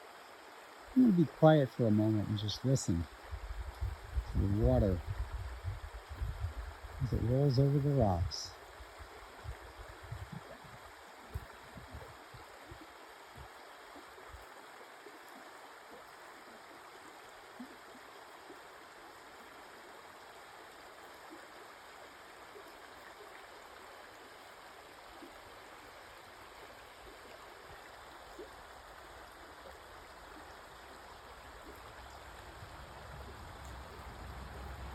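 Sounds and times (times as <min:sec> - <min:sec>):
brook babbling over rocks: 0:00.0 - 0:34.9
faint low bumps: 0:03.3 - 0:07.3.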